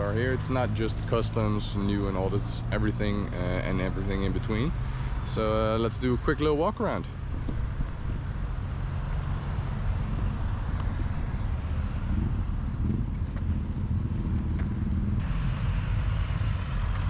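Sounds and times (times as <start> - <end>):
vehicle engines rumbling: 0.0 - 17.0
broad wash of noise: 15.0 - 17.0.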